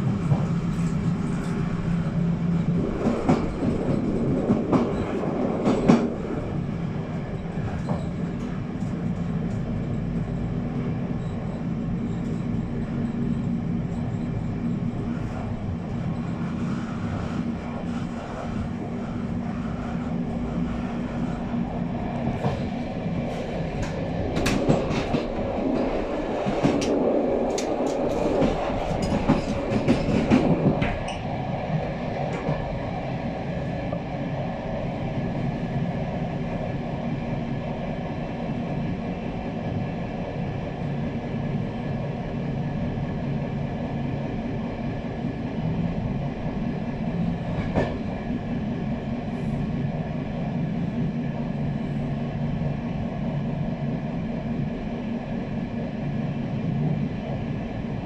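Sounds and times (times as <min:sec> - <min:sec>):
train wheels clattering on rails: 0:00.0 - 0:34.1, 0:47.0 - 0:48.4.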